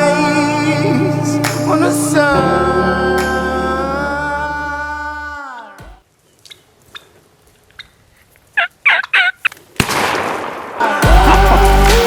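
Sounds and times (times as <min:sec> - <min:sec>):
turkey gobbling: 0:06.4 - 0:09.6
music slowing to a stop: 0:11.0 - 0:12.0.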